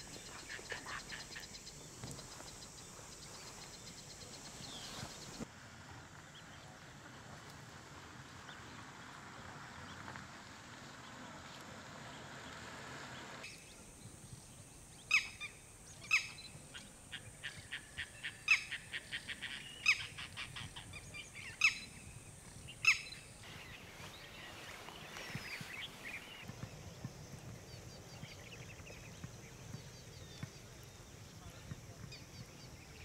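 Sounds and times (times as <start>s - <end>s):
quiet bird chips: 13.5s - 33.0s.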